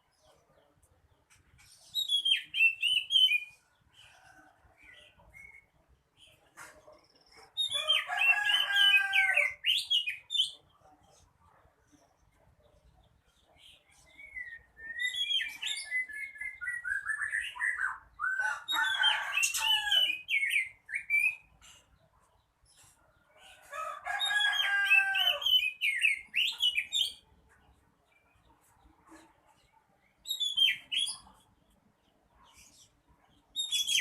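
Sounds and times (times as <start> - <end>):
bird singing varied whistles: 14.2 - 17.6.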